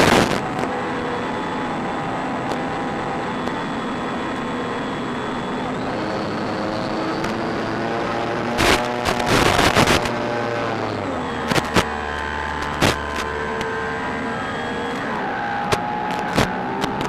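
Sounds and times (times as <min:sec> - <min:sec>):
electric motor propeller whine: 0:00.0 - 0:17.0
crackles and pops: 0:08.6 - 0:10.2, 0:11.4 - 0:13.8, 0:15.6 - 0:17.0.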